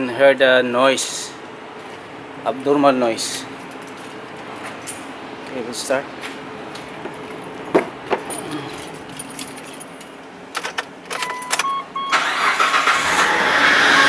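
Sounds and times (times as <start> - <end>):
keys clicking: 6.8 - 11.8
car engine cranking and starting: 10.6 - 14.0
dashboard warning beeps: 11.1 - 12.6.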